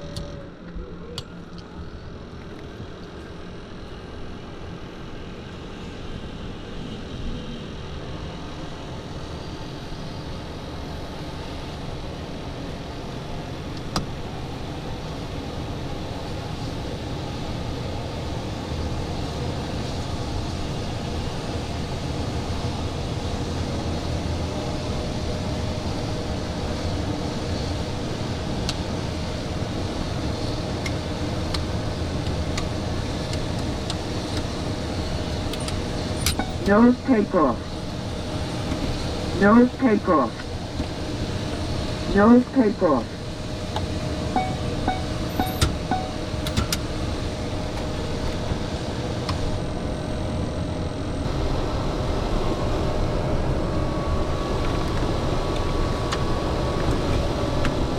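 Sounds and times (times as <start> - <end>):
cockpit hum and rushing air: 0.9 - 57.9
faint steady tone: 44.3 - 46.3.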